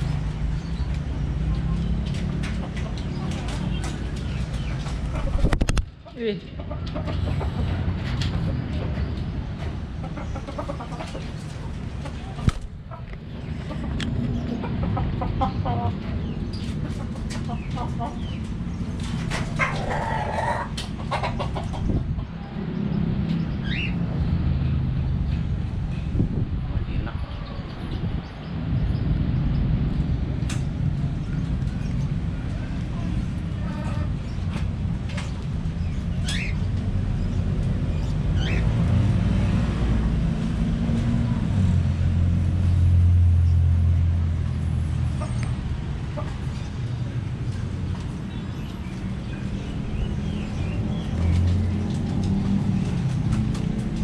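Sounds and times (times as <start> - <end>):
vehicle engine rumbling: 0.0 - 54.0
budgerigars calling: 35.8 - 37.3, 38.0 - 38.7.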